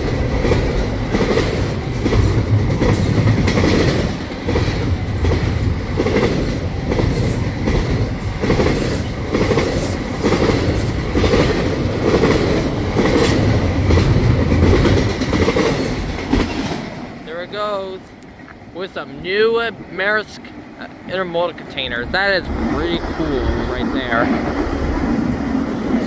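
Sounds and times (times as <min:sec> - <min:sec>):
wheels clacking over rails: 0:00.0 - 0:17.8
freight train rumbling past: 0:00.0 - 0:26.0.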